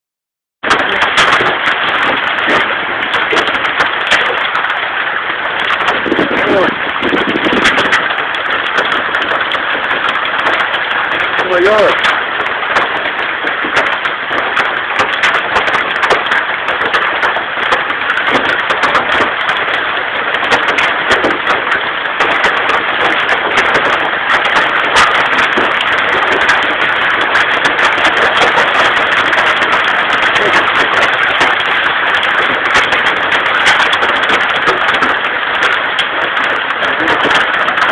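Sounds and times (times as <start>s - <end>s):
hailstones clicking on hard surfaces: 0.6s - 37.9s
hail hissing: 0.7s - 37.9s.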